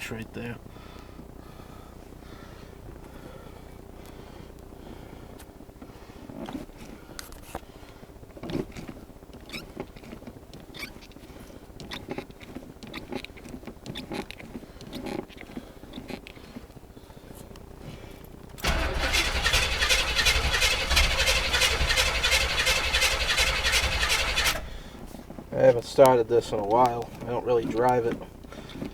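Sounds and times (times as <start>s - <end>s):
starter cranking engine: 18.6s - 25.2s.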